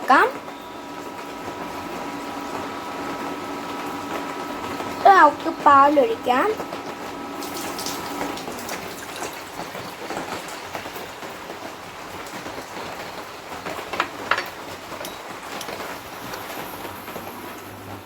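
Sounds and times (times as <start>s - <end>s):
milk pouring into pot: 6.9s - 11.0s.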